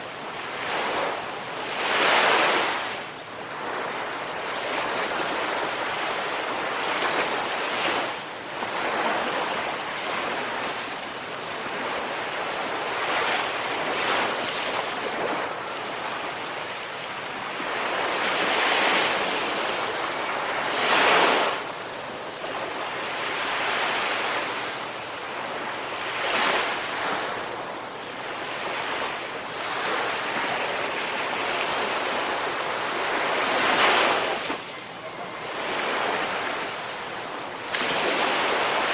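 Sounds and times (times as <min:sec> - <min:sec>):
ocean surf breaking: 0:28.4 - 0:38.9.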